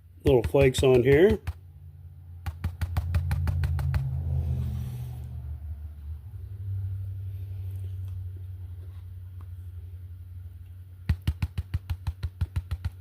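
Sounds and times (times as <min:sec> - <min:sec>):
vehicle passing rumble: 0:01.7 - 0:09.2.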